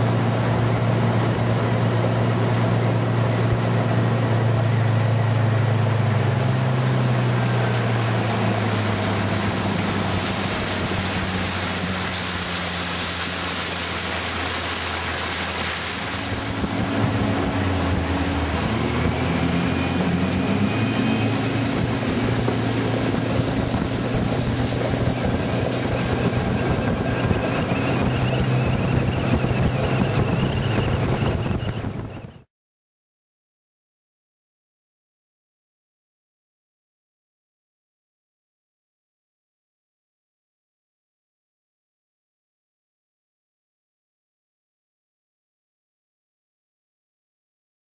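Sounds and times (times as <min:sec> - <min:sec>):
boat diesel engine running: 0:00.0 - 0:32.5
rushing water: 0:00.0 - 0:32.5
wind on microphone: 0:08.1 - 0:32.5.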